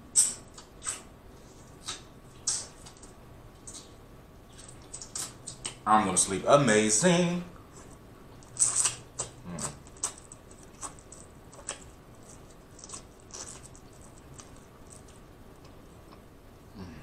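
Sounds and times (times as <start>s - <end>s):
chewing clicks: 7.8s - 16.2s.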